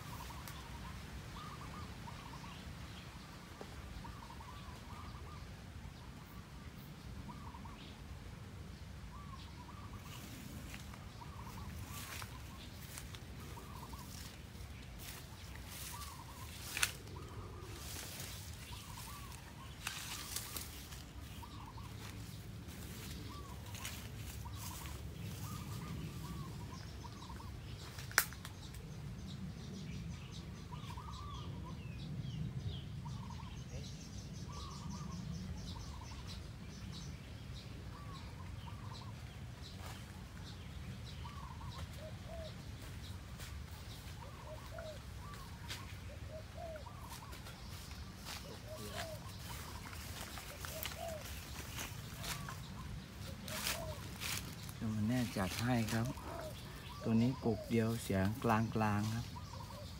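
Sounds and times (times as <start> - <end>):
doves cooing: 9.1 - 27.6, 41.2 - 42.9, 43.8 - 59.9.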